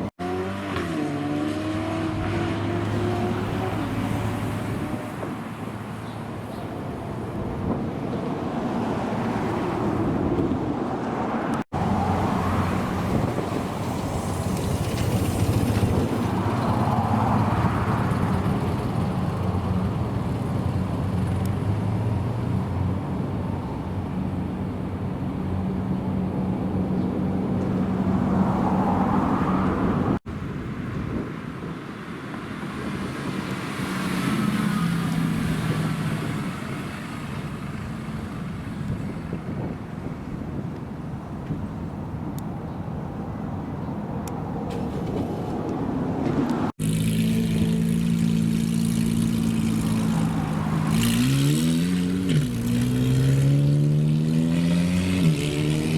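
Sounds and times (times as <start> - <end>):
car engines running: 0.0 - 7.8, 11.6 - 30.5, 44.5 - 55.9.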